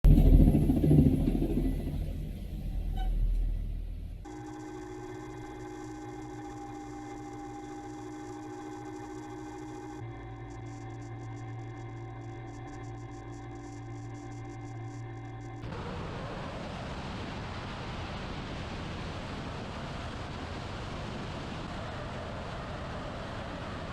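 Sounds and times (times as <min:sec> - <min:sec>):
low rumbling music: 0:00.0 - 0:15.7
helicopter turbine whine: 0:00.0 - 0:23.9.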